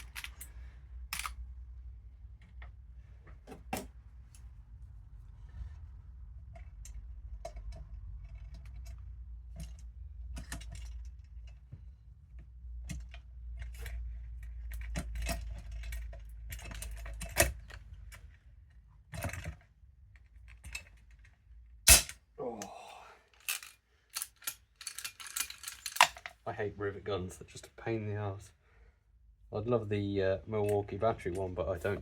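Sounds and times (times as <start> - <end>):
small metal parts clinking: 0.0 - 0.5, 1.1 - 1.4, 21.9 - 22.2, 23.3 - 26.4.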